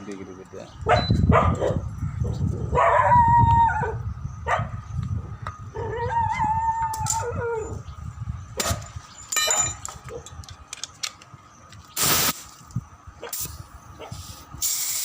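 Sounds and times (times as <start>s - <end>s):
metal tools clinking and knocking: 8.6s - 11.3s
ringing metallic clink: 9.2s - 9.9s
air hiss: 12.0s - 12.6s, 13.3s - 15.0s.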